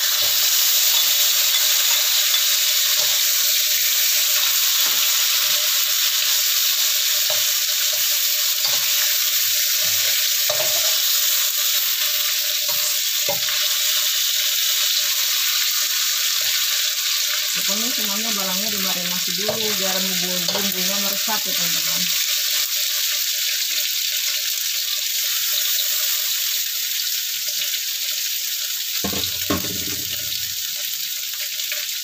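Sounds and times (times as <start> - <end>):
food sizzling in hot oil: 0.0 - 32.0
metal spatula knocking and scraping: 9.8 - 11.0, 29.0 - 30.4.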